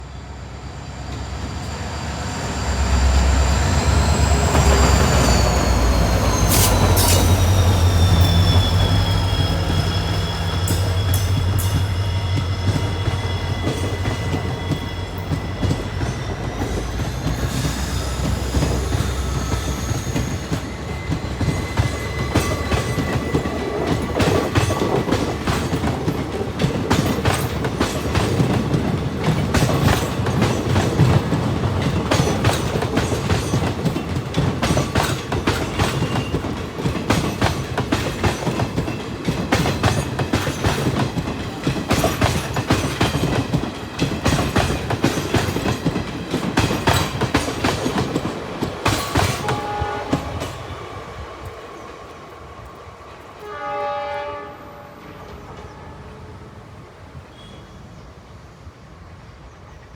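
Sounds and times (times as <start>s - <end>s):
locomotive engine hum: 0.0s - 53.3s
train wheels clacking over rail joints: 4.3s - 50.7s.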